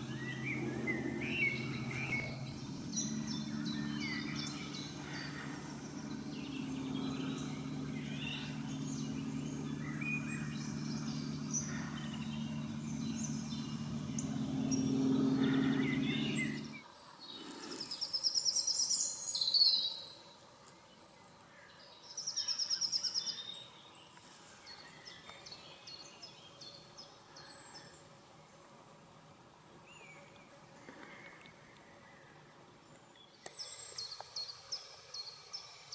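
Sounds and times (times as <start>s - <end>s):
rapid high bird trills: 0.0s - 16.8s
steady low hum: 0.0s - 16.8s
songbirds singing: 0.0s - 28.7s, 29.8s - 35.9s.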